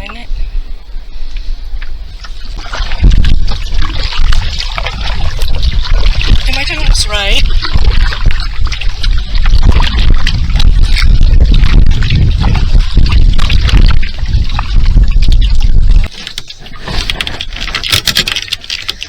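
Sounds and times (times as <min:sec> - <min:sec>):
wind rumble on microphone: 0:00.0 - 0:19.0
paddle strokes in water: 0:00.1 - 0:19.0.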